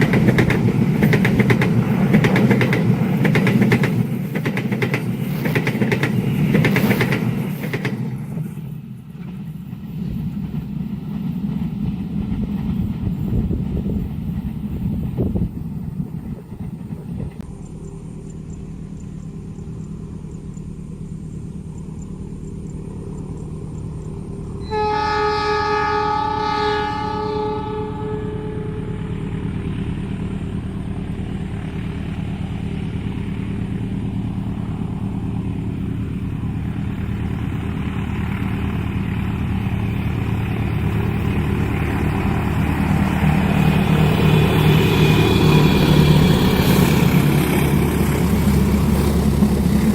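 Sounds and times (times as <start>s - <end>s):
locomotive engine droning: 0.0s - 49.9s
train horn blast: 24.6s - 29.7s.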